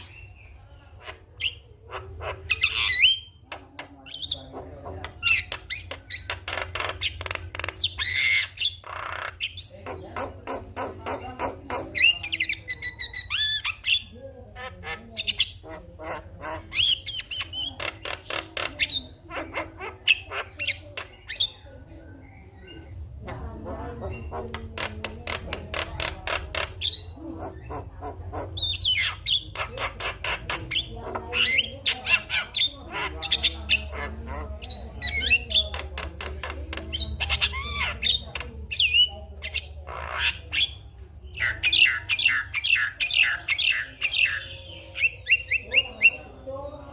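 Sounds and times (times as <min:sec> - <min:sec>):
myna singing chattering and whistles: 0:14.8 - 0:46.9.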